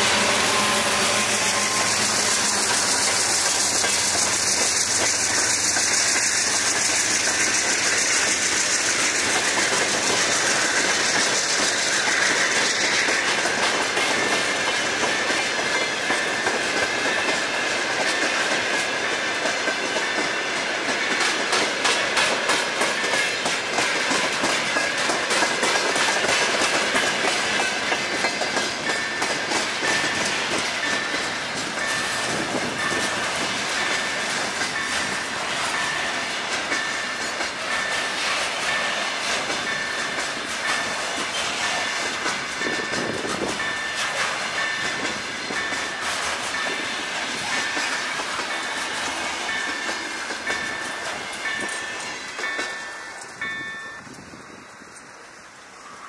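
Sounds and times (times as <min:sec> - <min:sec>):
train wheels clattering over rails: 0:00.0 - 0:55.2
level crossing warning bell: 0:22.4 - 0:56.0.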